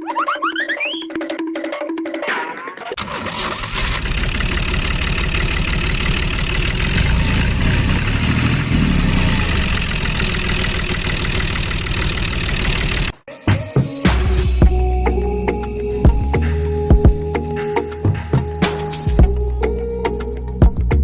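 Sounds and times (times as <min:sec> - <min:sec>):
small tractor engine running: 0:03.0 - 0:13.1.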